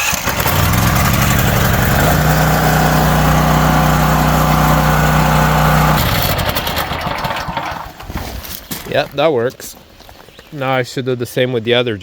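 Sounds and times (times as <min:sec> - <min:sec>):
generator engine running: 0:00.0 - 0:08.0.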